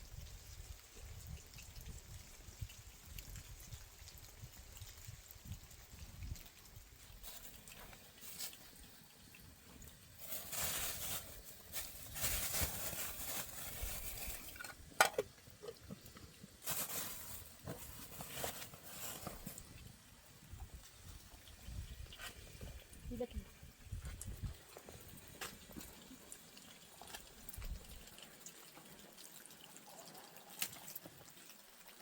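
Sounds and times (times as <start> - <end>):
rain pattering: 0.6 - 19.7.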